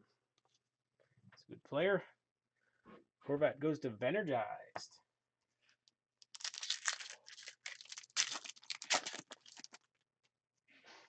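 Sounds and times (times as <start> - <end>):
foil wrapper tearing and crinkling: 6.2 - 9.9.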